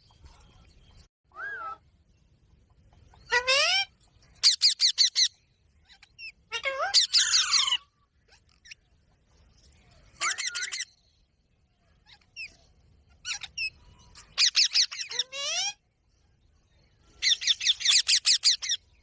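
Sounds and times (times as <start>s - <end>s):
parrot squawking and chirping: 3.1s - 8.9s, 10.1s - 11.1s, 12.0s - 15.8s, 17.2s - 19.0s.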